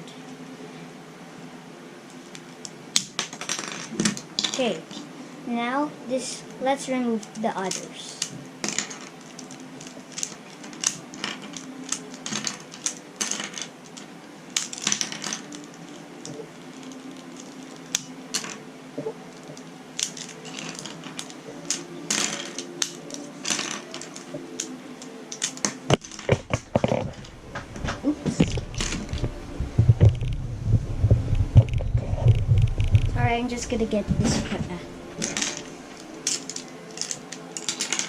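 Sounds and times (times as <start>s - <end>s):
plastic cube pieces clicking: 8.2s - 18.6s, 19.5s - 27.0s, 36.2s - 38.0s.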